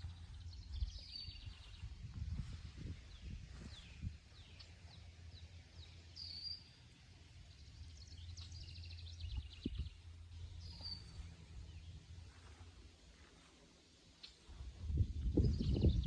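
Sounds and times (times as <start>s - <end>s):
songbirds chirping: 0.0s - 16.0s
steady low rumble: 0.0s - 16.0s
bird trill: 7.9s - 11.9s.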